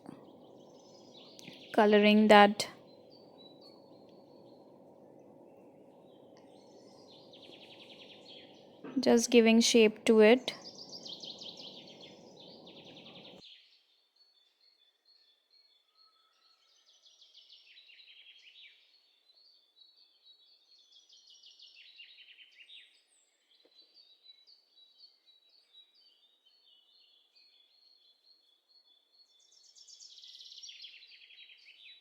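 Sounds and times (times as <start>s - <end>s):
low background hiss: 0.0s - 13.4s
small birds chirping: 0.0s - 13.7s, 15.1s - 32.0s.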